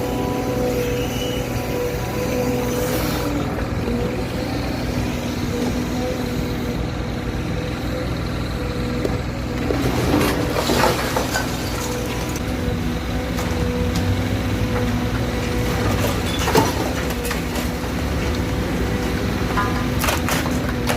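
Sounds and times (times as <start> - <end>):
heavy engine humming: 0.0 - 20.9
clattering and crunching: 9.0 - 20.9.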